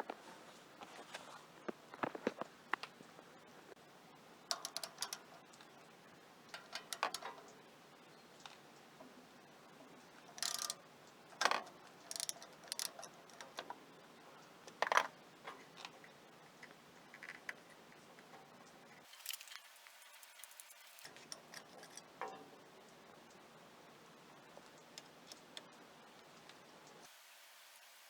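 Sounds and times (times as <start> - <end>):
hand tools clicking on metal: 4.5 - 5.7, 6.5 - 7.6, 10.3 - 10.8, 11.4 - 13.8.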